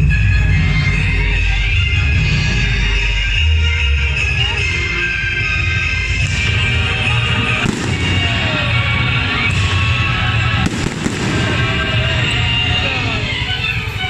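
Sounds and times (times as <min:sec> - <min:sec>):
music with steady bass beat: 0:00.0 - 0:14.0
fireworks bursting with bangs: 0:06.2 - 0:14.0.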